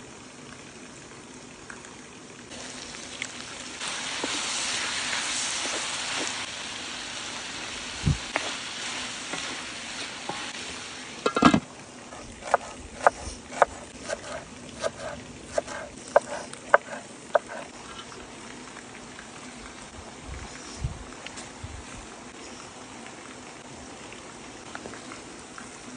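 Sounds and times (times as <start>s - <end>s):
food sizzling in a pan: 2.5s - 17.7s.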